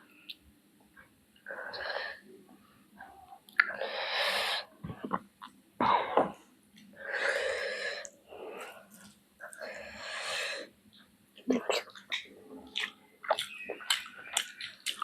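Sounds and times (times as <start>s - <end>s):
person breathing hard: 7.0s - 8.8s, 9.5s - 10.7s.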